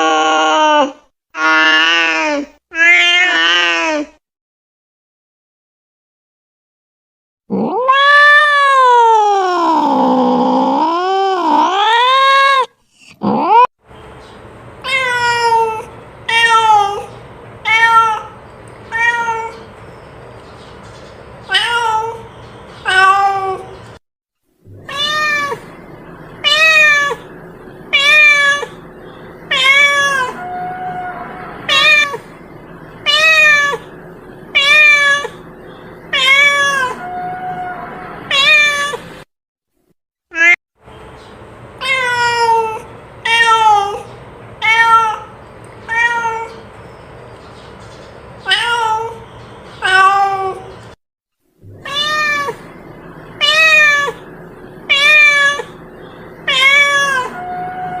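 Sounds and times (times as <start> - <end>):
cat meowing: 0.0 - 4.1, 7.5 - 13.7, 14.8 - 19.7, 21.5 - 23.8, 24.7 - 25.8, 26.4 - 28.8, 29.5 - 32.3, 33.0 - 33.9, 34.5 - 35.5, 36.1 - 39.1, 40.3 - 40.6, 41.8 - 46.6, 48.4 - 49.2, 49.8 - 50.8, 51.7 - 54.3, 54.9 - 55.8, 56.4 - 58.0.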